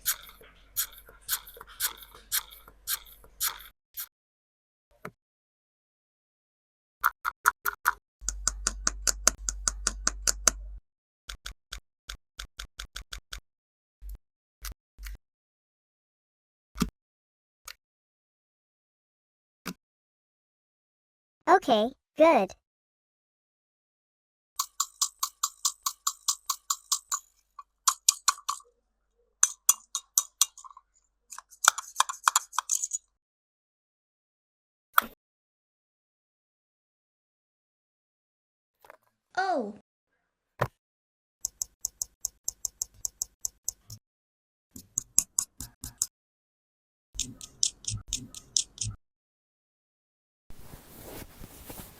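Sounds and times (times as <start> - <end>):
plastic toy pieces clicking: 24.6 - 27.3, 27.9 - 28.7.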